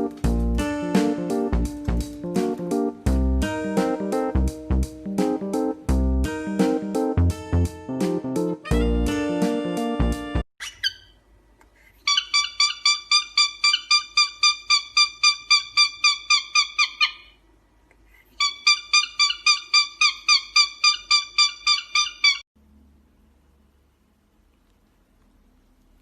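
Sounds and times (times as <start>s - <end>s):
small animal high-pitched calls: 10.6s - 11.2s, 12.0s - 17.4s, 18.3s - 22.4s.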